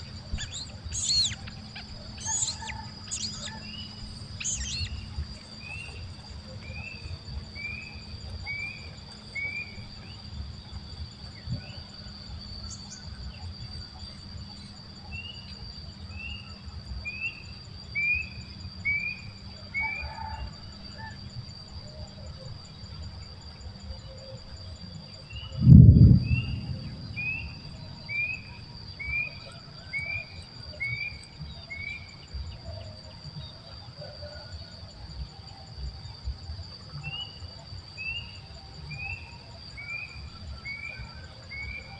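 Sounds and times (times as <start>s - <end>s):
bird chirping: 0.0s - 7.0s
high-pitched insect drone: 0.0s - 41.9s.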